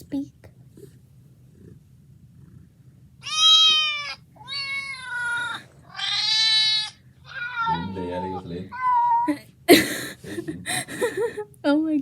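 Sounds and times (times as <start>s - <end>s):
cat meowing: 3.2s - 9.4s.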